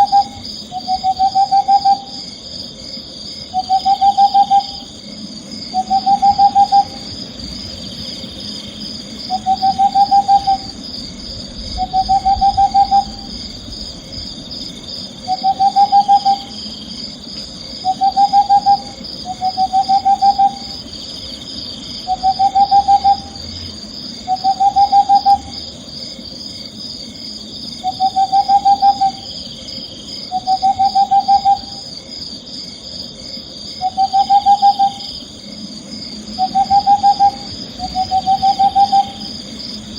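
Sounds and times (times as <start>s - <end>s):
owl trilled hoot: 0.0s - 2.3s, 3.5s - 5.0s, 5.7s - 7.1s, 9.3s - 10.8s, 11.7s - 13.4s, 15.2s - 16.7s, 17.8s - 20.8s, 22.0s - 23.6s, 24.3s - 25.5s, 27.8s - 29.4s, 30.3s - 31.8s, 33.8s - 35.2s, 36.4s - 39.4s
steady high chirring: 0.0s - 39.9s.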